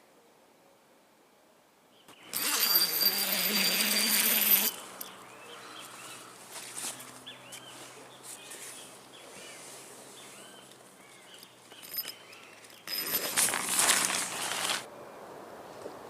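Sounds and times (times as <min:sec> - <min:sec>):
birds chirping: 0:04.5 - 0:13.2
rustling crunching noise: 0:11.1 - 0:14.9.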